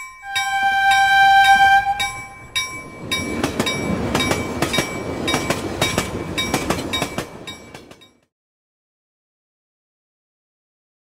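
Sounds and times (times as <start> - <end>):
bell-like chime: 0.0 - 8.1
train wheels clattering over joints: 0.4 - 8.2.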